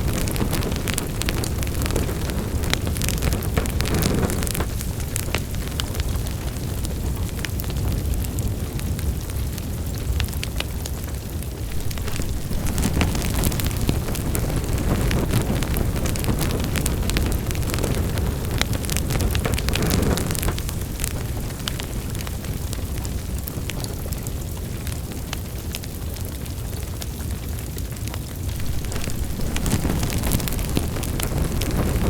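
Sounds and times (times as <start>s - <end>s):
low roar of burning: 0.0s - 32.0s
wood fire crackling and popping: 0.0s - 32.0s.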